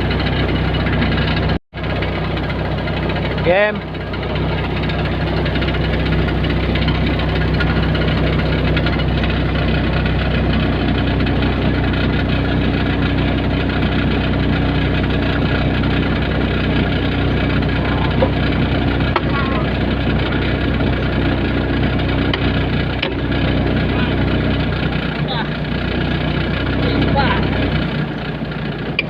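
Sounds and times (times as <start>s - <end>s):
excavator diesel engine running: 0.0s - 29.0s
high steady whine: 0.0s - 29.0s.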